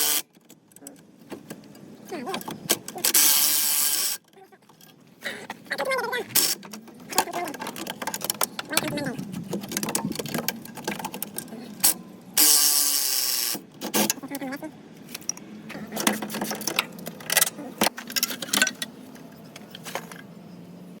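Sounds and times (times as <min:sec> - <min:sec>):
metallic clanks of tools: 0:15.1 - 0:20.3.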